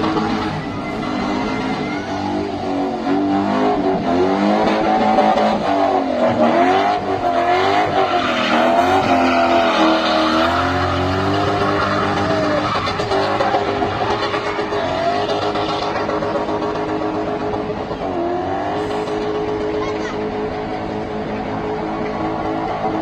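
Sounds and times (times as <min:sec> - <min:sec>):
car engine revving hard: 0:00.0 - 0:23.0
tyre squeal: 0:07.7 - 0:17.2.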